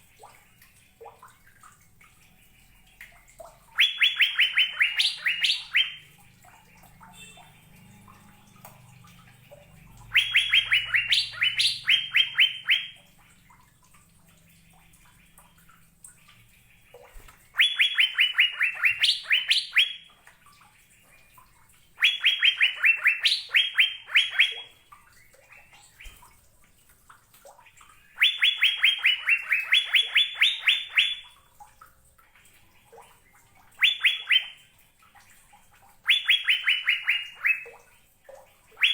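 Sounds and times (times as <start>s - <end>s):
bird singing rapid high notes: 3.7s - 9.1s, 9.8s - 13.0s, 17.6s - 20.1s, 22.0s - 24.8s, 28.0s - 31.4s, 33.8s - 34.6s, 36.0s - 37.8s.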